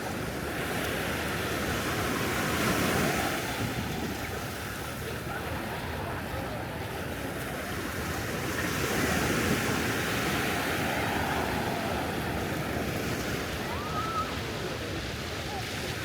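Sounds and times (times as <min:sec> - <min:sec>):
ocean surf washing on beach: 0:00.0 - 0:16.0
wind on microphone: 0:01.9 - 0:04.8.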